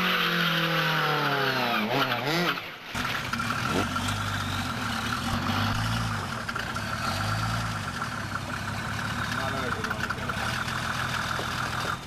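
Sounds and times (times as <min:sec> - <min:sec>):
car engine idling: 0:02.7 - 0:12.0.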